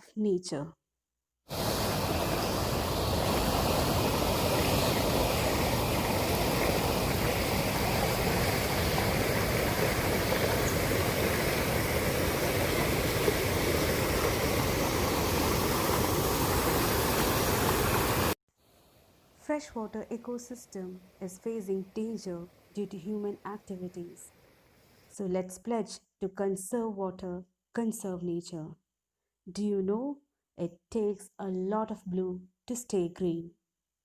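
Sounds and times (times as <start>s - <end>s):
stream flowing: 1.5s - 18.4s.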